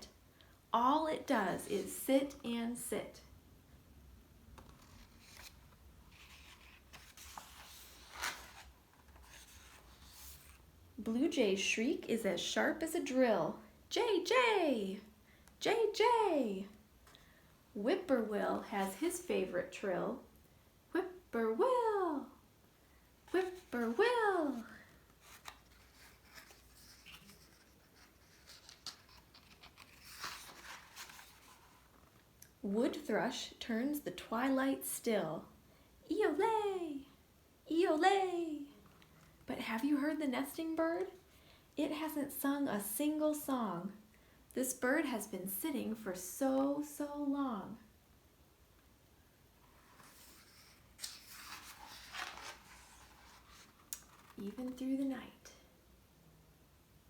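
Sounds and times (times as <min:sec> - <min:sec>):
paper page turning: 0:04.6 - 0:10.6, 0:23.3 - 0:32.2, 0:49.6 - 0:54.8.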